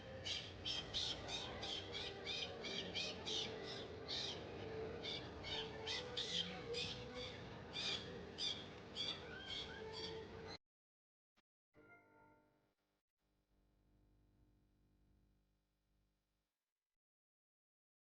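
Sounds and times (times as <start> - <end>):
low background murmur: 0.0 - 10.6.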